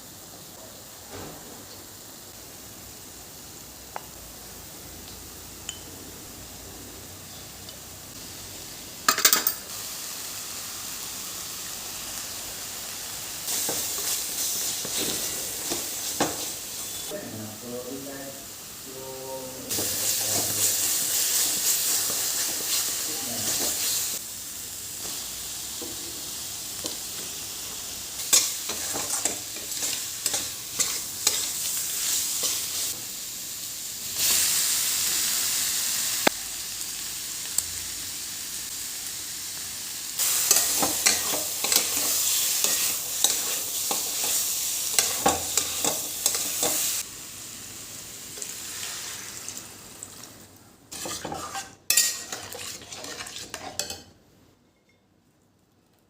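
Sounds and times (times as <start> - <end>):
food sizzling in a pan: 0.0 - 54.2
spatula scraping a pan: 28.3 - 32.7, 40.3 - 46.9, 50.9 - 54.1.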